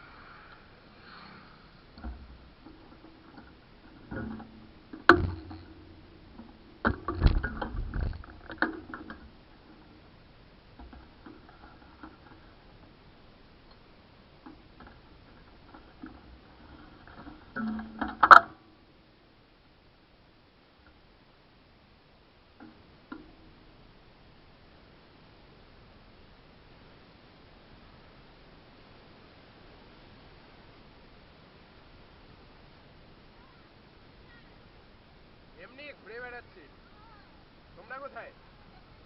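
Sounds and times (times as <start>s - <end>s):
rattling knocks: 2.0s - 9.9s, 14.5s - 18.6s.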